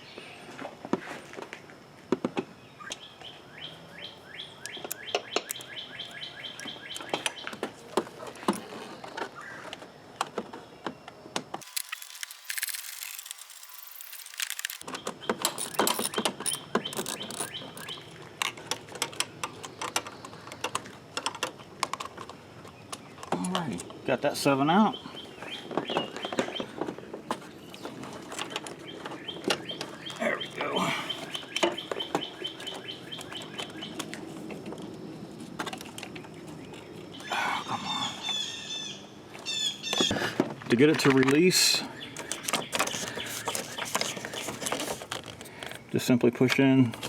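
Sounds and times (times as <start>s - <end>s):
songbirds chirping: 1.8s - 12.2s, 12.9s - 47.0s
ratcheting wrench clicks: 15.5s - 18.0s.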